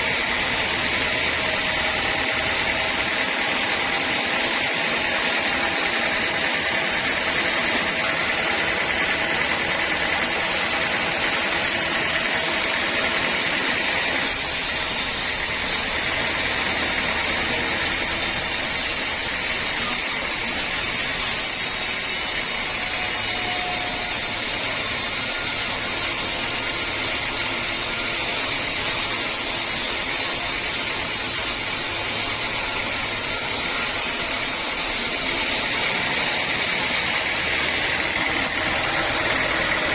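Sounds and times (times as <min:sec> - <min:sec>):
sawmill saw cutting wood: 0:00.0 - 0:39.9.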